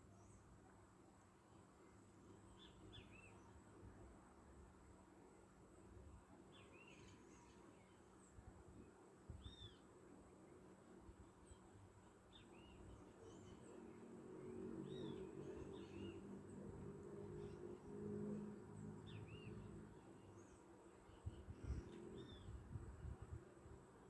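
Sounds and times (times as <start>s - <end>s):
small birds chirping: 11.4s - 22.6s.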